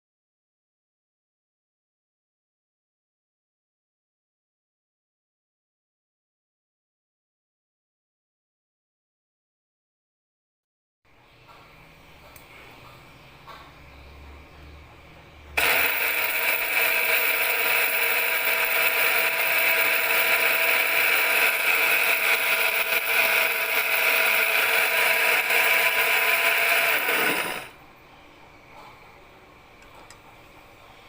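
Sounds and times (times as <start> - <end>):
coffee grinder motor running: 15.6 - 27.8.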